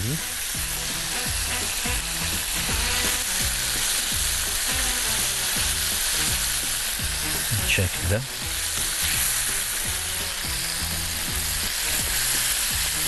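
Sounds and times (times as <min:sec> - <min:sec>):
background music with low beat: 0:00.0 - 0:13.0
food frying sizzle: 0:00.0 - 0:13.0.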